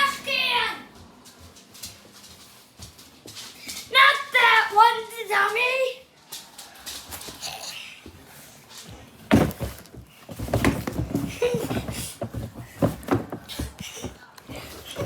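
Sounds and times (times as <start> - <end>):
things being handled and set down: 8.8 - 15.0.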